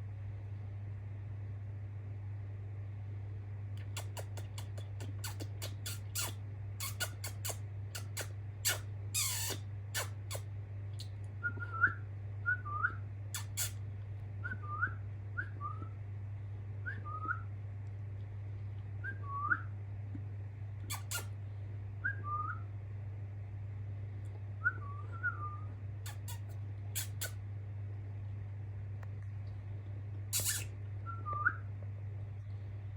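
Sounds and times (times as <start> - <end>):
budgerigar chirps: 3.8 - 10.4, 13.4 - 13.8, 20.9 - 21.3, 26.0 - 27.4, 30.3 - 30.7
budgerigar sharp clicks: 30.4 - 30.7.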